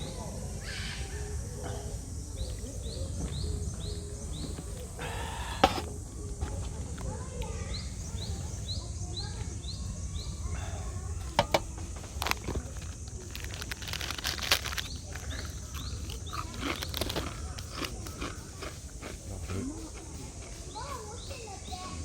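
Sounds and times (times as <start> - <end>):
bird chirping: 0.0 - 5.9, 14.6 - 18.3
cicadas buzzing: 0.0 - 22.0.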